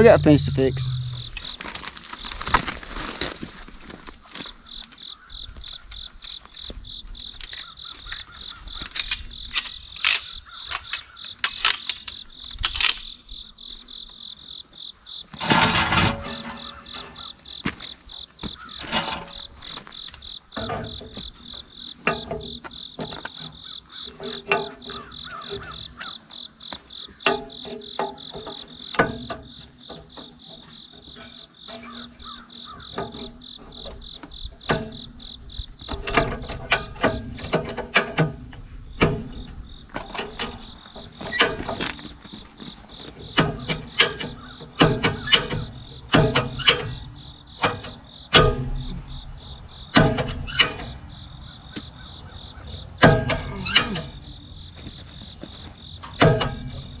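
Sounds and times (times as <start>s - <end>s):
irregular clicks and knocks: 0.0s - 1.8s, 18.5s - 26.1s, 26.7s - 51.1s, 53.0s - 57.0s
insects chirping: 0.0s - 57.0s.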